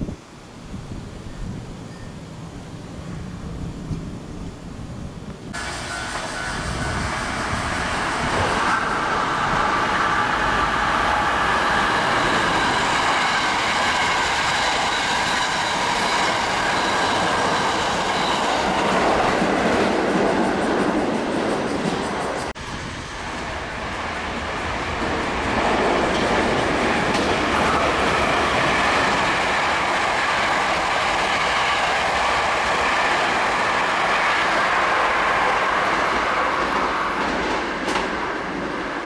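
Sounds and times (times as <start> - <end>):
train wheels on rail: 2.9 - 39.0
steady high tones: 5.6 - 22.6.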